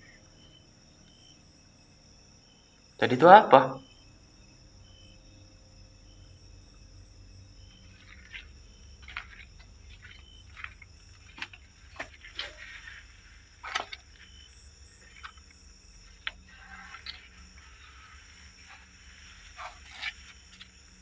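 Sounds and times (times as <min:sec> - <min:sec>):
night insects chirring: 0:00.0 - 0:21.0
short clicks and rustles: 0:07.8 - 0:20.8.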